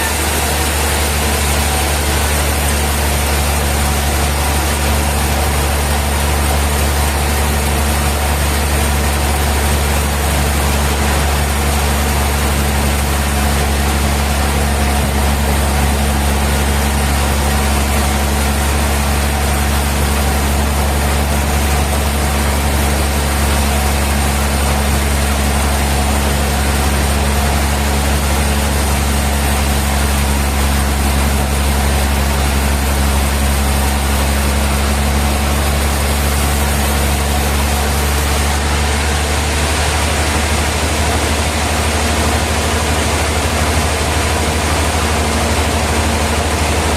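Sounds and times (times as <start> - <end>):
sawmill machinery humming: 0.0 - 46.9.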